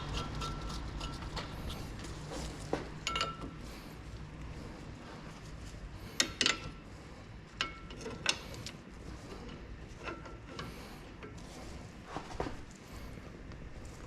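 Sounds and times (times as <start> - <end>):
low steady hum: 0.0 - 14.0
metal tools clinking: 3.0 - 3.6.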